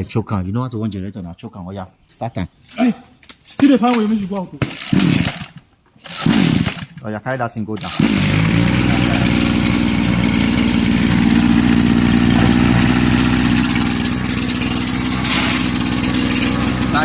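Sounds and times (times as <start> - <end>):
small petrol engine running: 7.8 - 17.0.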